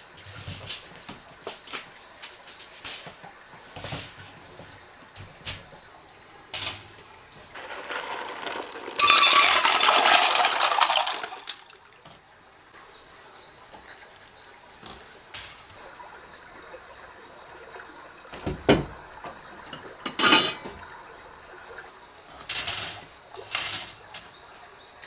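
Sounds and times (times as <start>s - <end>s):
utensils clicking and clinking: 6.5s - 11.7s, 14.8s - 15.8s, 18.4s - 21.5s, 22.2s - 24.8s
water pouring into vessel: 7.0s - 12.0s.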